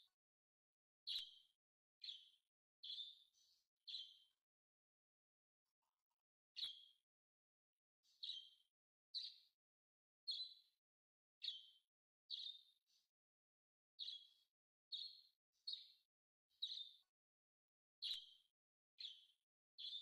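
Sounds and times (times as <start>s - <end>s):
small bird chirping: 1.1s - 4.4s, 6.6s - 7.1s, 8.0s - 9.6s, 10.3s - 10.8s, 11.4s - 13.1s, 14.0s - 17.1s, 18.0s - 20.0s.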